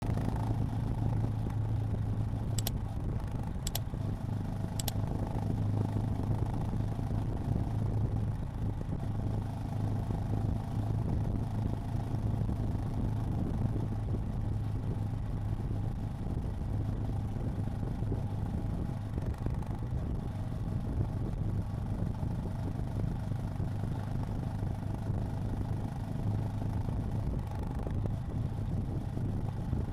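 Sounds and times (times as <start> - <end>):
motorcycle engine cruising: 0.0 - 29.9
light ticks: 2.6 - 2.8, 3.6 - 3.8, 4.8 - 5.0.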